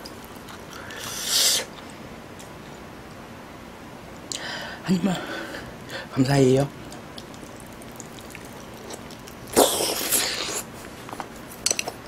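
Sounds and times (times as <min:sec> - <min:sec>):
wet chewing mouth sounds: 0:06.9 - 0:11.0.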